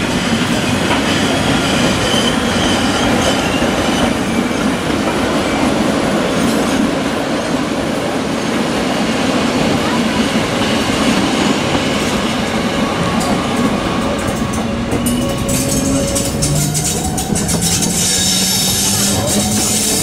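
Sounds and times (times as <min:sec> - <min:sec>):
train wheels rumbling on rail: 0:00.0 - 0:20.0
high wheel squeal: 0:01.3 - 0:04.6, 0:12.8 - 0:20.0.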